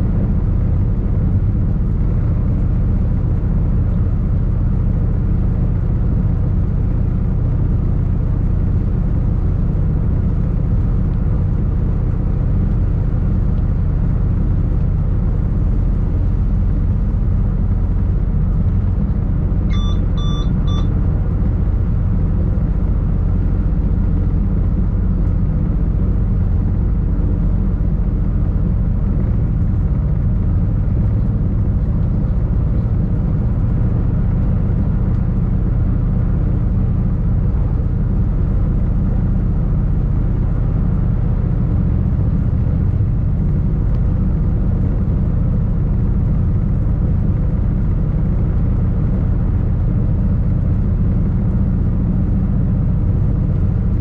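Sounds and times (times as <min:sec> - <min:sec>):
short electronic beeps: 0:19.7 - 0:20.9.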